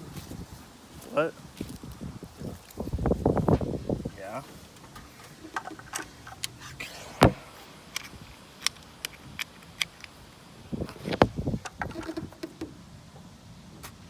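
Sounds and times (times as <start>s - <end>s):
tools clicking and knocking: 4.9s - 6.6s.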